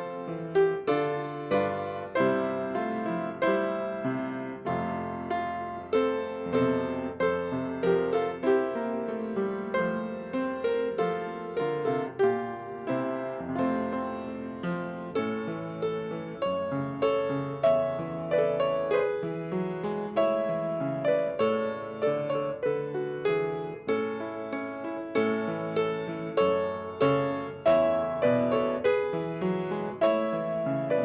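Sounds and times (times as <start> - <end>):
slow gentle solo piano: 0.0 - 31.0.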